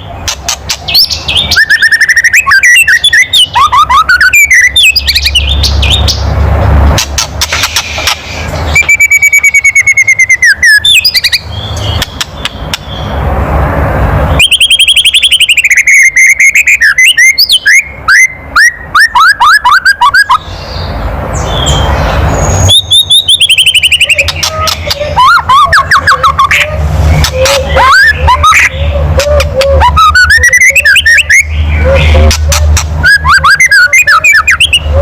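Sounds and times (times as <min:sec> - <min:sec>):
bird whistled notes: 0:00.9 - 0:06.2, 0:07.6 - 0:12.2, 0:14.4 - 0:20.4, 0:22.4 - 0:28.8, 0:29.6 - 0:34.9.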